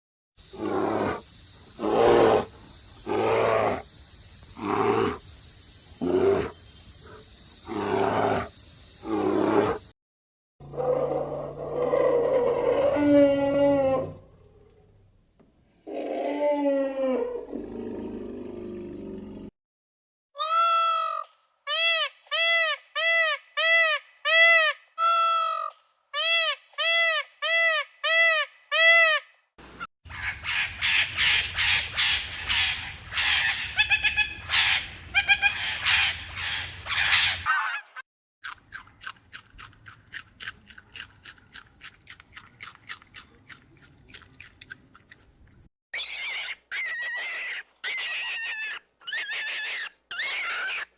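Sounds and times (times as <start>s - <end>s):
bird calls: 30.1s - 37.9s.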